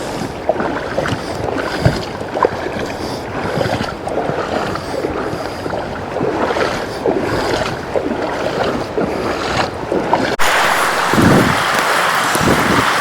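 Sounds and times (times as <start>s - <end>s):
water sloshing from wading steps: 0.0s - 13.0s
running water hiss: 10.4s - 13.0s.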